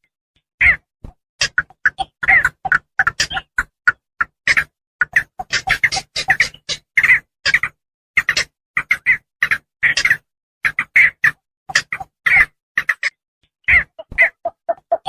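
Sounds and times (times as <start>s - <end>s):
heron squawking: 4.5s - 7.2s.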